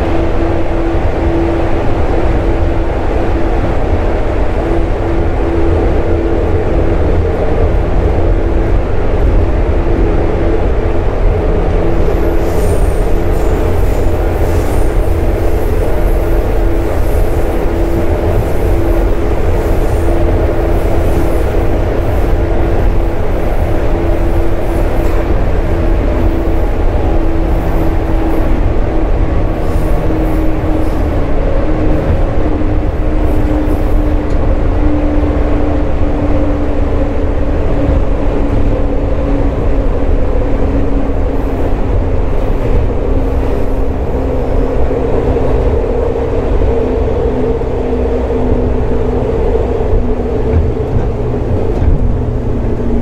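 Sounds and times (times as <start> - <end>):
steady train hum: 0.0 - 53.0
train wheels rumbling: 0.0 - 53.0.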